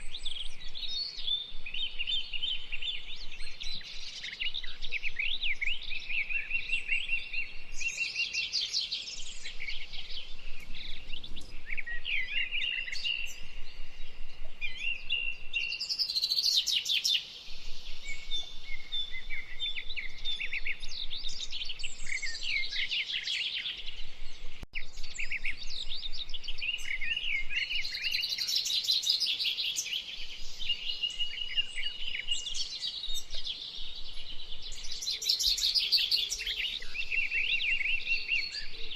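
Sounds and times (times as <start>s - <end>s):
flock of blackbirds calling: 0.0s - 38.9s.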